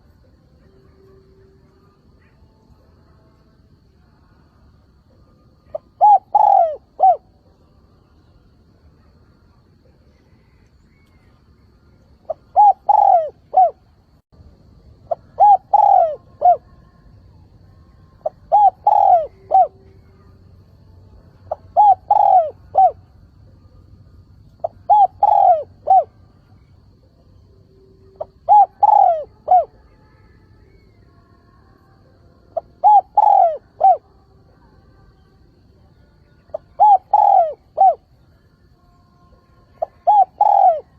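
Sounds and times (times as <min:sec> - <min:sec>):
dove cooing: 0:05.1 - 0:07.4, 0:12.2 - 0:13.9, 0:15.0 - 0:16.8, 0:18.2 - 0:20.4, 0:21.5 - 0:23.2, 0:24.6 - 0:26.2, 0:28.0 - 0:29.8, 0:32.6 - 0:34.1, 0:36.5 - 0:38.1, 0:39.7 - 0:40.9.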